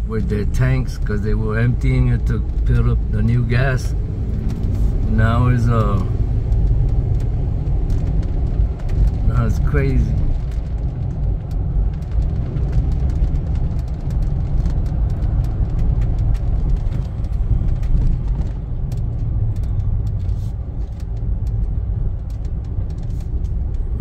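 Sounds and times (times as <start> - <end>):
car engine and road noise: 0.0 - 24.0
faint clicks and rattles: 0.1 - 24.0.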